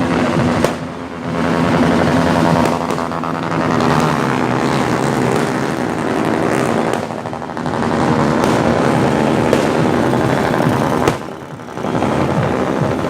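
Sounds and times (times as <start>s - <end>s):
motorbike engines running: 0.0s - 13.0s
distant firework pops: 0.1s - 1.4s, 6.2s - 13.0s.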